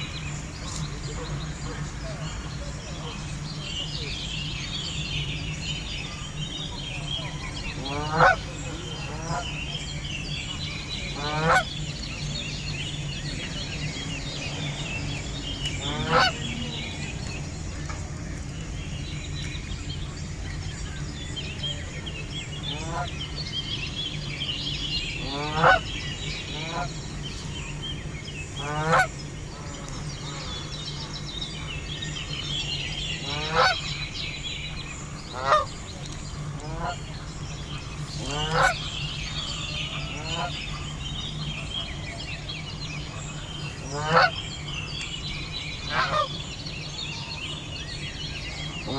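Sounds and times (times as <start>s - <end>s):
small birds twittering: 0.0s - 48.9s
geese honking: 7.0s - 9.8s, 10.9s - 11.9s, 14.5s - 17.1s, 22.6s - 23.3s, 25.1s - 27.2s, 28.6s - 30.6s, 33.2s - 34.2s, 35.1s - 42.1s, 43.0s - 44.9s, 45.8s - 46.5s, 48.7s - 48.9s.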